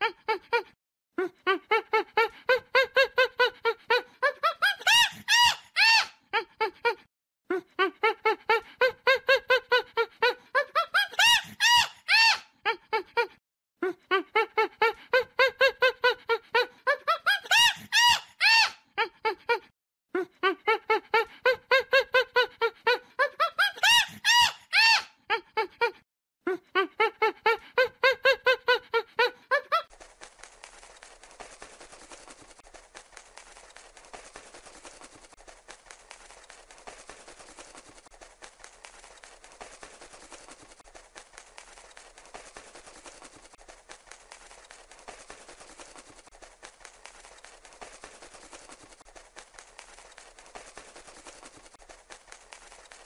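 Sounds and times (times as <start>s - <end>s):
monkey hoots and screeches: 1.5s - 7.0s, 8.5s - 13.3s, 14.6s - 19.4s, 21.1s - 25.4s.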